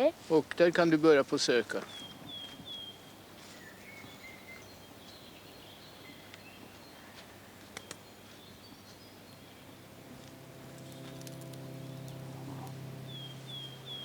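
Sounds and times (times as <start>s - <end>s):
sharp clicks: 7.7s - 8.0s.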